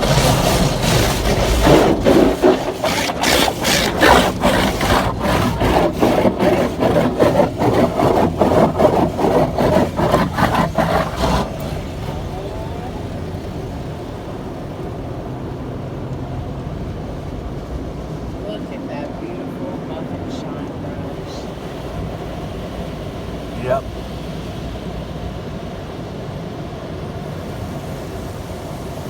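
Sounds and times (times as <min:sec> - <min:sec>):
car wash brushes scrubbing: 0:00.0 - 0:13.4.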